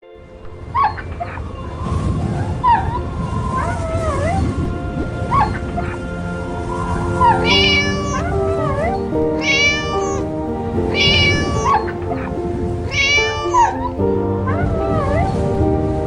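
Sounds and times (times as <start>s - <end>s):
background music: 0.0s - 16.0s
kitten meowing: 7.4s - 8.8s, 9.4s - 10.2s, 12.9s - 13.7s.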